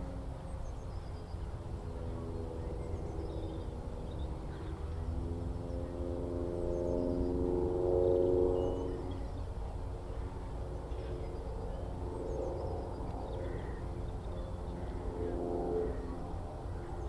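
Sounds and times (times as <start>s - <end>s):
distant propeller aircraft droning: 0.0s - 17.0s
low outdoor rumble: 0.0s - 17.0s
faint bird calls: 10.1s - 17.0s.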